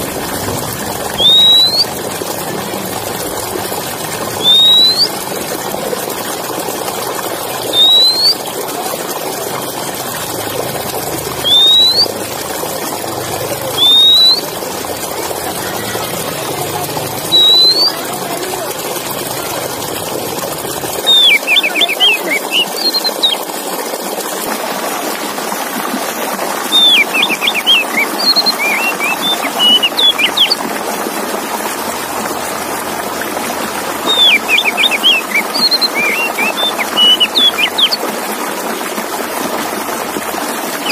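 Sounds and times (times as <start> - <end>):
songbird whistling: 1.1 - 2.0, 4.4 - 5.2, 7.6 - 8.5, 11.4 - 12.1, 13.6 - 14.6, 17.2 - 18.0, 21.0 - 23.4, 26.7 - 30.6, 34.0 - 38.0.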